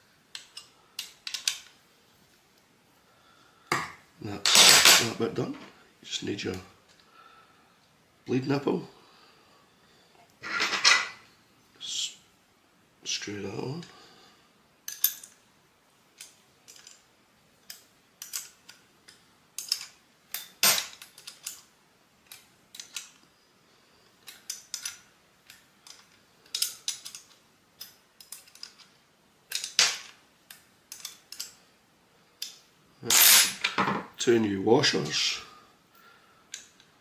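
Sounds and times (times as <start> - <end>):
small metallic clicks and taps: 24.2 - 28.9, 30.5 - 31.6.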